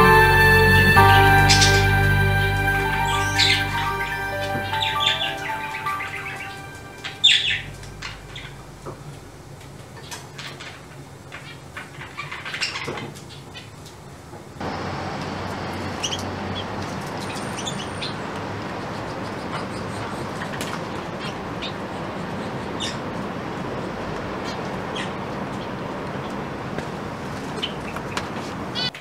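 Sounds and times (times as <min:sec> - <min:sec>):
birds chirping: 0:01.0 - 0:09.3, 0:14.6 - 0:26.4.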